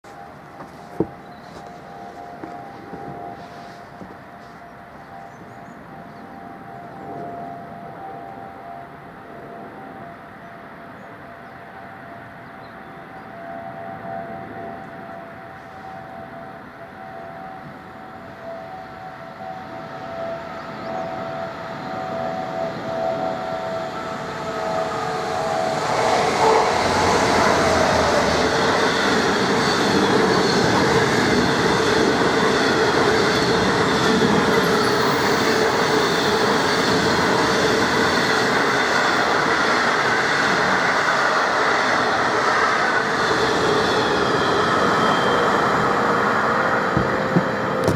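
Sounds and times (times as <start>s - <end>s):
train wheel clatter: 46.8s - 47.9s.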